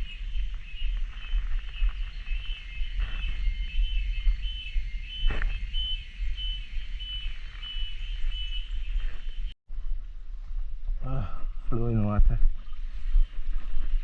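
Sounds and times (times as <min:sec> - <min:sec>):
cicadas chorus: 0:00.0 - 0:09.5.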